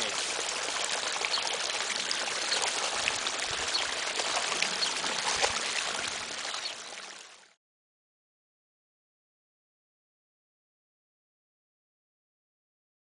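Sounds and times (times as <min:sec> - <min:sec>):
running water: 0:00.0 - 0:07.6.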